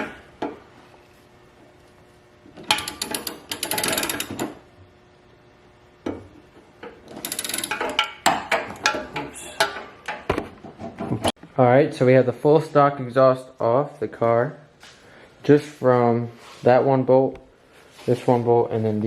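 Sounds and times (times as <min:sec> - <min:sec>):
ratchet wrench clicking: 0:02.7 - 0:04.5, 0:07.1 - 0:08.1.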